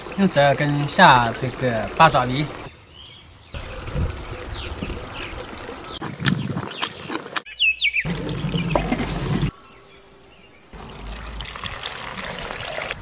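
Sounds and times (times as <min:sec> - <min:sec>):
high bird chirp: 0:04.5 - 0:08.8, 0:09.5 - 0:10.8.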